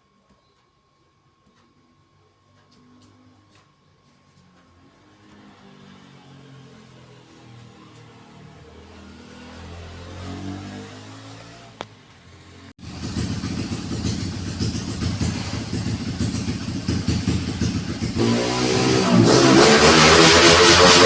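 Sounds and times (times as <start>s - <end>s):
motorcycle engine crackling: 12.8s - 20.6s.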